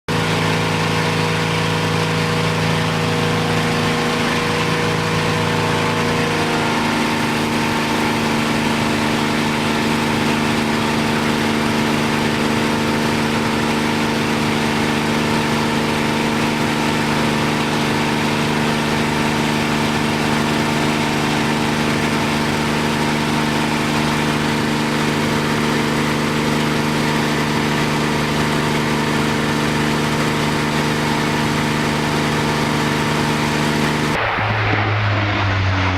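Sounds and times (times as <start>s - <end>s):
aircraft engine idling: 0.1s - 35.9s.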